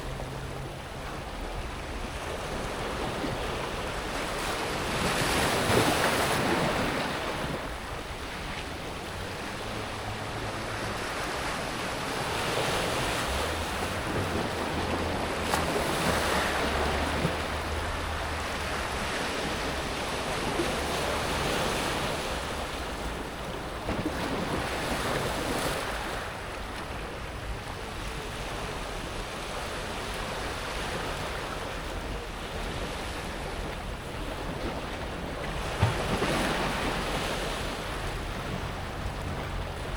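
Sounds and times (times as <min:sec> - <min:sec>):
waves washing over pebbles: 0:00.0 - 0:27.2.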